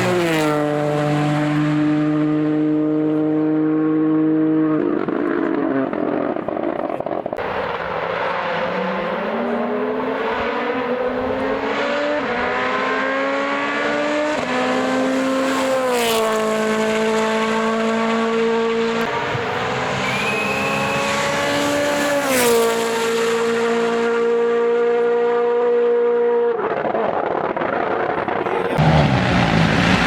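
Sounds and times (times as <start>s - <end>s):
rally car engine revving: 0.0s - 30.0s
rough engine noise: 17.1s - 25.1s, 26.5s - 30.0s.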